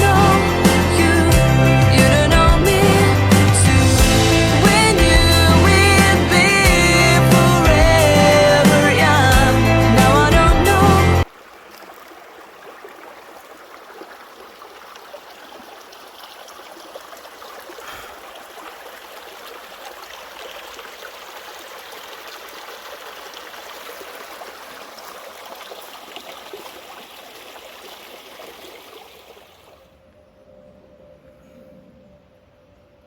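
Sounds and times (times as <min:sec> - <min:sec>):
running water rushing: 0:00.0 - 0:29.9.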